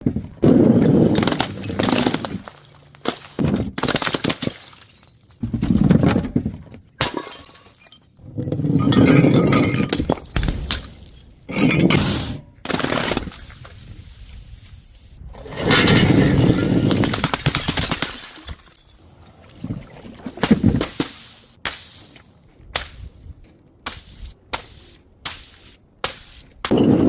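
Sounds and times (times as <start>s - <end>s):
glass bottles shattering: 1.2s - 3.2s, 3.8s - 5.4s, 7.0s - 12.4s, 15.7s - 19.0s.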